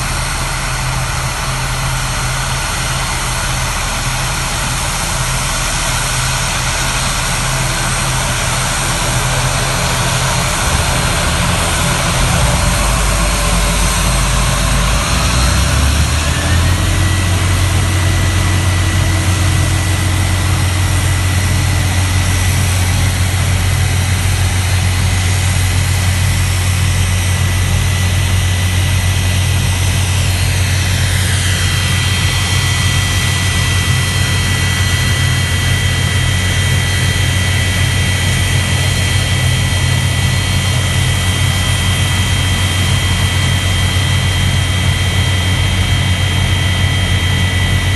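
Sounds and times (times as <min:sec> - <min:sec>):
jet engines running: 0:00.0 - 0:47.9
rising tone: 0:06.5 - 0:22.3.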